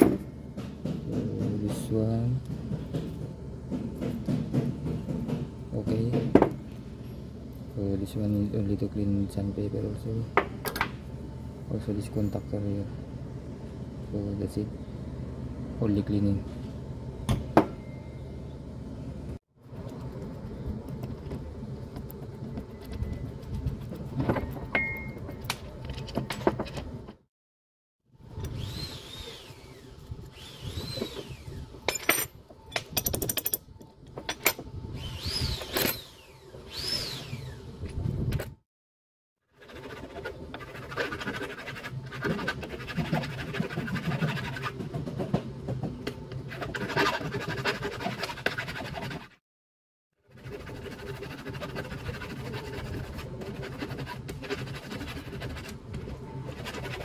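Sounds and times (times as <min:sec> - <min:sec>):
steady low hum: 0:00.0 - 0:27.2
sandpaper scrubbing metal: 0:39.6 - 0:44.9, 0:46.5 - 0:49.4, 0:50.3 - 0:55.8, 0:56.5 - 0:57.0.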